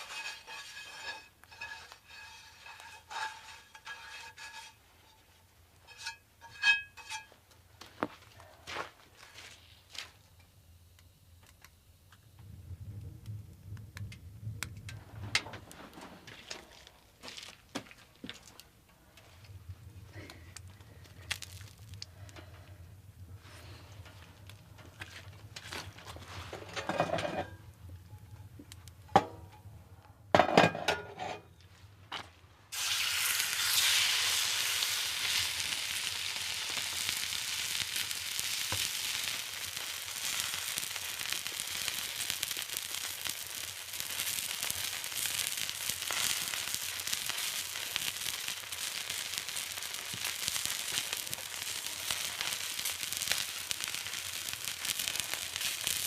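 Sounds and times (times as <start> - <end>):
food sizzling in a pan: 0.0 - 4.8, 32.7 - 56.0
knocks and clatters of handling: 24.0 - 27.6.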